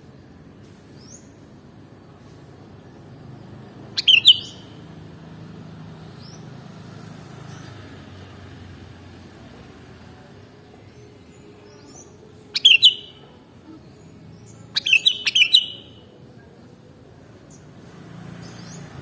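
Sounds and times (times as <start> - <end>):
faint rising bird chirps: 3.7 - 4.9, 11.8 - 13.4, 14.4 - 16.2
bird calling loud phrase: 4.0 - 4.8, 12.5 - 13.4, 14.8 - 16.1.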